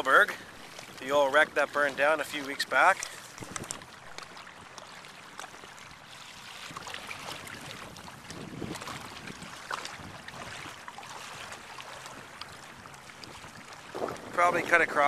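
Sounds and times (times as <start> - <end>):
water splashing against kayak: 0.0 - 15.0
wind noise on microphone: 3.3 - 4.0, 6.6 - 10.8, 13.2 - 15.0.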